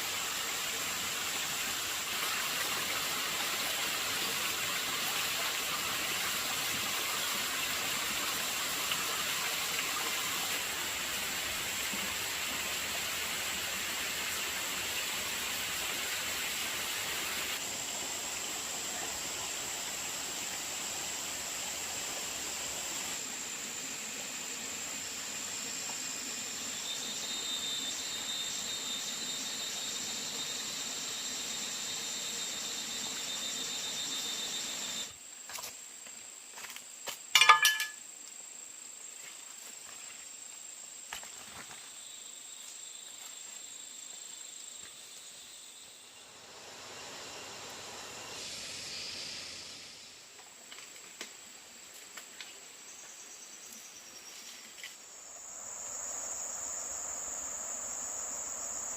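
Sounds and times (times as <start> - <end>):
hiss: 0.0 - 35.3, 40.6 - 58.9
high-pitched insect drone: 17.6 - 35.2, 52.9 - 58.9.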